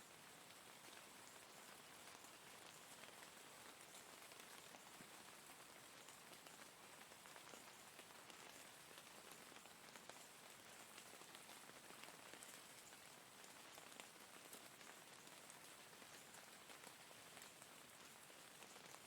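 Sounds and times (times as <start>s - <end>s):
faint rain hiss: 0.0s - 19.0s.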